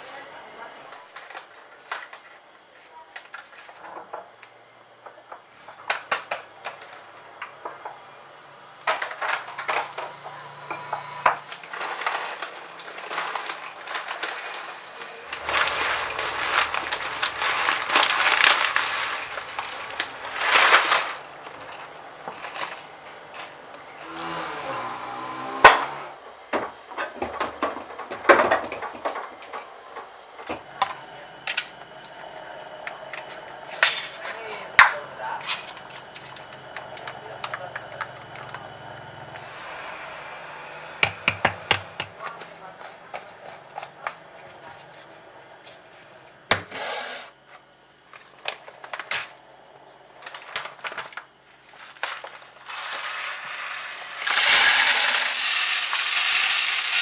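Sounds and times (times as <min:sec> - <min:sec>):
objects knocking and clinking: 0:11.8 - 0:22.8
rustling: 0:13.3 - 0:23.0.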